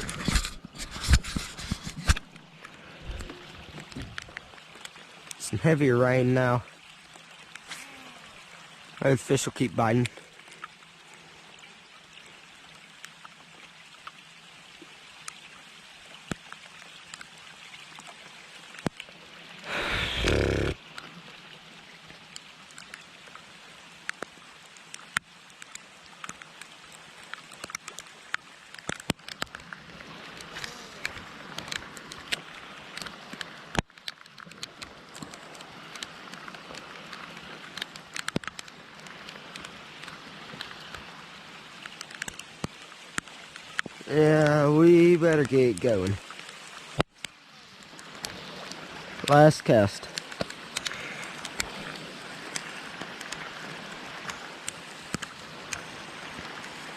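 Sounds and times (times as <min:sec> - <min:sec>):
sharp ticks of raindrops: 0:01.4 - 0:56.9
heavy rain falling: 0:19.6 - 0:20.8.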